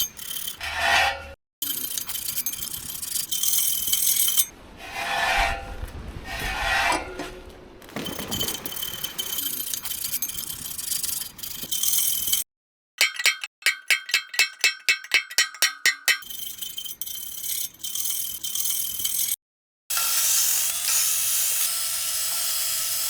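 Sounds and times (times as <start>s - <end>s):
file rasping on steel: 0.0s - 5.7s.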